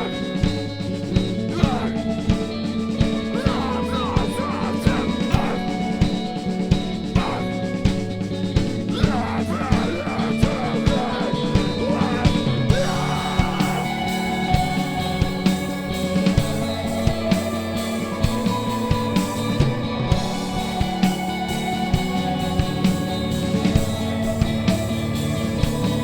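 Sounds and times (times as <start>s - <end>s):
live rock band playing: 0.0s - 26.0s
gliding guitar notes: 10.3s - 26.0s.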